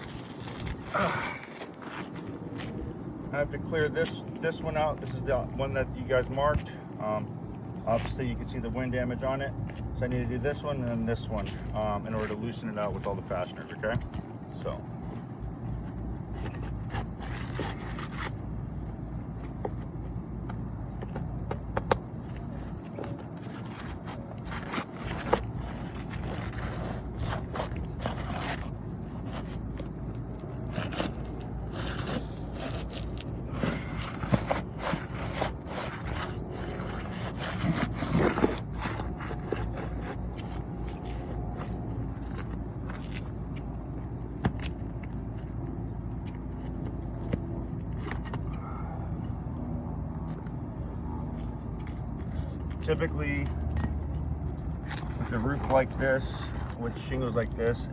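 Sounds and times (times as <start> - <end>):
metal pry tool scraping shingles: 20.8 - 43.2, 52.4 - 57.9.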